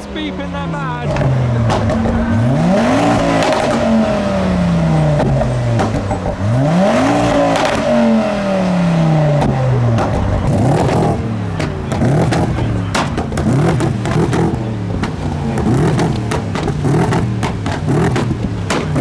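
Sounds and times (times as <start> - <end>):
car engine revving: 0.0 - 19.0
exhaust pops and bangs: 0.2 - 19.0.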